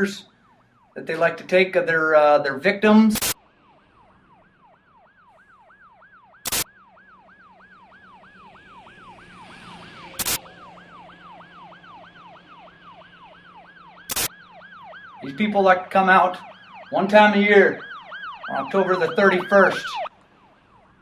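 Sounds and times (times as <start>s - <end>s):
siren yelping: 0.0s - 21.0s
sharp loud clicks: 6.4s - 6.7s, 10.2s - 10.4s, 14.1s - 14.4s.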